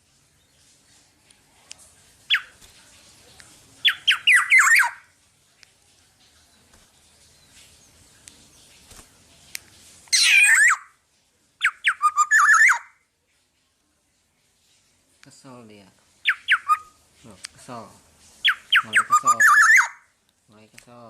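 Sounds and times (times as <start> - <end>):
oriole whistling calls: 2.3 - 2.6, 3.8 - 5.1, 10.1 - 10.9, 11.6 - 12.9, 16.2 - 17.0, 18.4 - 20.1
bird harsh squawk: 3.8 - 5.1, 10.1 - 11.0, 11.6 - 13.0, 16.2 - 17.0, 18.4 - 20.1.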